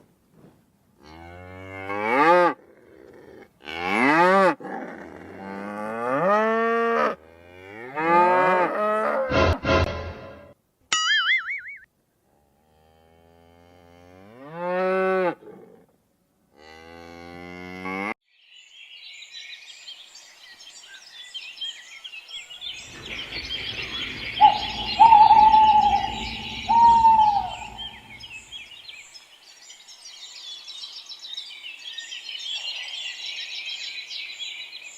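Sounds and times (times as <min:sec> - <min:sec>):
high chirping: 0:22.8 - 0:28.5
low rumble: 0:22.8 - 0:28.5
cattle mooing: 0:22.9 - 0:28.4.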